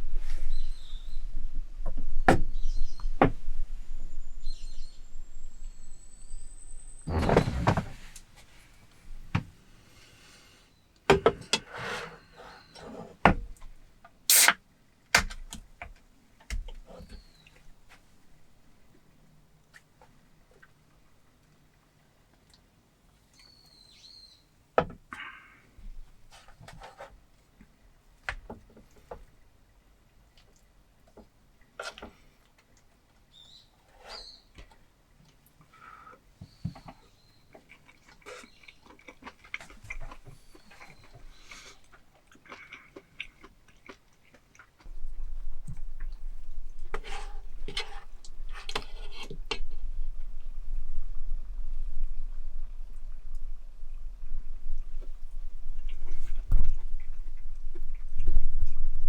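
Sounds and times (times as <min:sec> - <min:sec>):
noisy scrape: 0:07.1 - 0:08.2
short bright burst of noise: 0:14.3 - 0:14.5.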